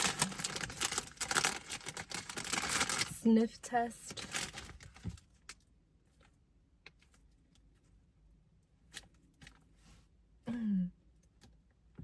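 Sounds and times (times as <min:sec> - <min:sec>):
chip bag crinkling: 0:00.0 - 0:03.2, 0:03.9 - 0:05.0.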